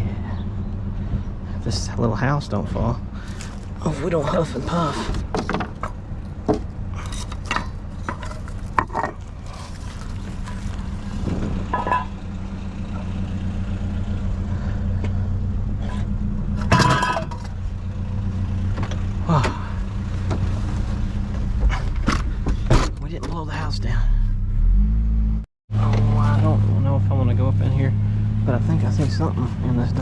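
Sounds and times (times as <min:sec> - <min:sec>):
truck engine running: 0:00.0 - 0:25.0, 0:25.7 - 0:30.0
knocks and clinks: 0:11.7 - 0:12.2, 0:16.6 - 0:17.5.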